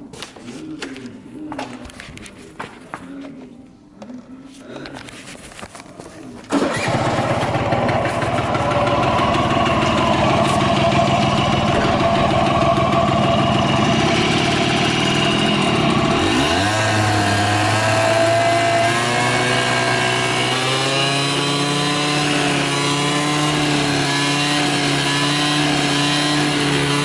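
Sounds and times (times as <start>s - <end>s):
scooter engine running: 6.5s - 27.0s.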